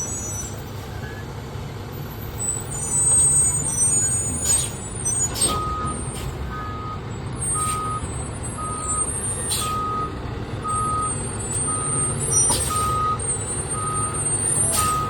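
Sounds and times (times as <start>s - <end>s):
diesel engine idling: 0.0s - 15.0s
backup alarm beeping: 5.6s - 15.0s.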